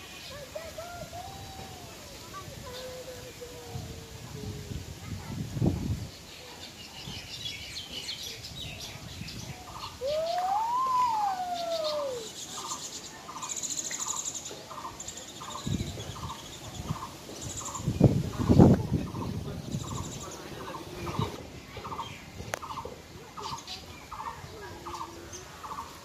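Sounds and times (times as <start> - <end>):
birds chirping: 5.8 - 26.0.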